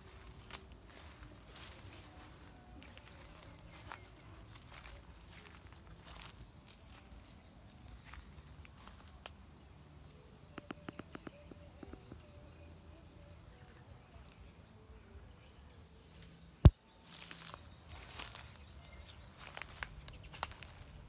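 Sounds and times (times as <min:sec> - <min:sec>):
quick run of clicks: 0:10.6 - 0:12.3.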